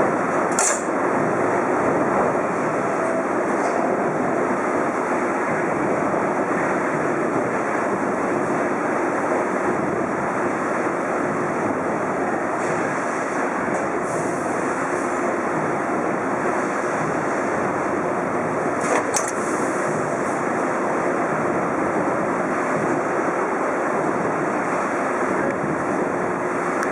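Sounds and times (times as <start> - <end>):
punch press mechanical whir: 0.5 - 1.0.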